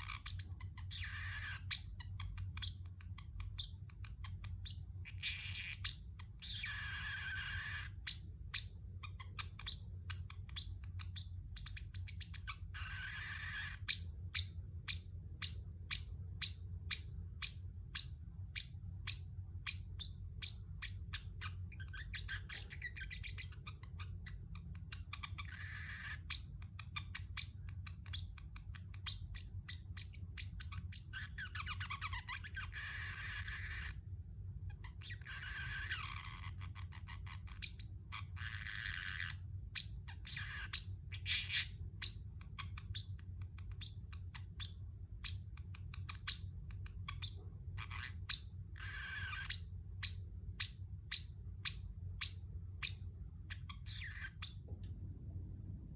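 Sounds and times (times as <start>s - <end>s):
parrotlet chirping: 0.0s - 34.0s, 34.6s - 54.7s
steady low hum: 39.3s - 55.9s.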